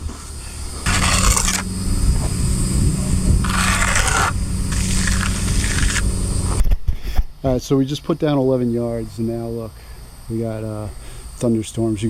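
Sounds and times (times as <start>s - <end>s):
engine running: 0.0s - 6.6s
scraping noise bursts: 0.0s - 6.6s.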